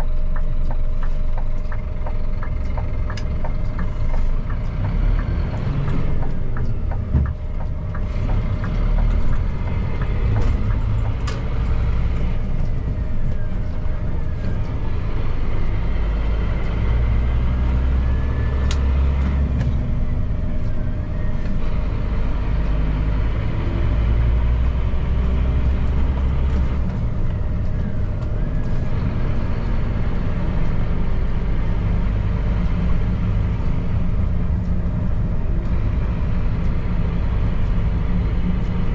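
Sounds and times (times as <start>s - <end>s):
road noise: 0.0s - 38.9s
truck diesel engine droning: 0.0s - 38.9s.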